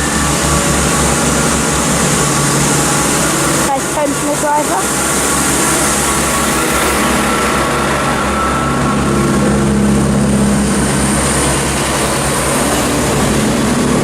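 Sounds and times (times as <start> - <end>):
train diesel engine drone: 0.0 - 14.0.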